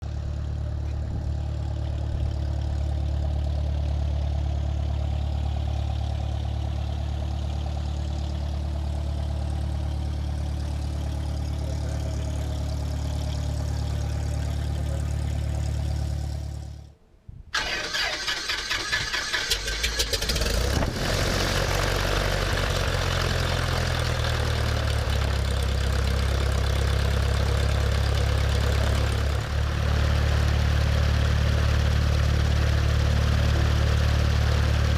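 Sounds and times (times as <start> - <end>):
propeller plane engine running: 0.0 - 16.9, 17.6 - 34.9.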